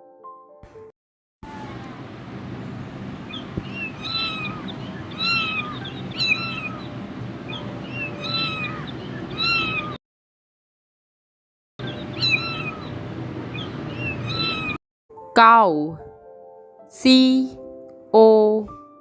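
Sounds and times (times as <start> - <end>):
cat meowing: 1.4 - 2.1, 3.3 - 6.9, 7.5 - 10.0, 11.8 - 14.8.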